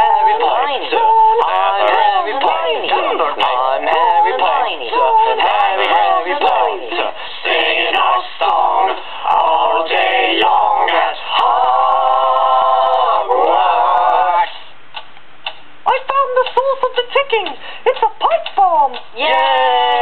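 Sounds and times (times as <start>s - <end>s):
voices singing a cappella chant: 0.0s - 14.7s, 19.2s - 20.0s.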